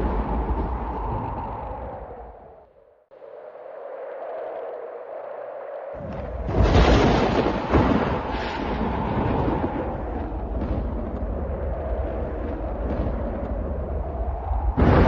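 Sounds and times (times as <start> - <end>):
thunder rolling rumble: 0.0 - 2.6, 6.0 - 15.0
snowstorm wind: 0.0 - 15.0
sharp thunder crack: 6.0 - 11.4, 14.8 - 15.0.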